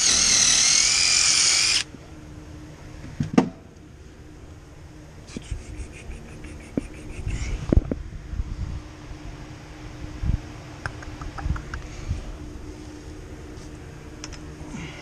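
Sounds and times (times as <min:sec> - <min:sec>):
power drill whining: 0:00.0 - 0:01.9.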